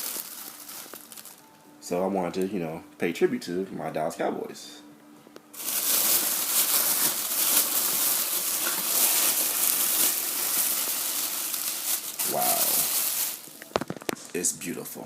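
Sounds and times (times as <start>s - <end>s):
plastic packaging crinkling: 0.0s - 1.5s, 5.6s - 14.5s.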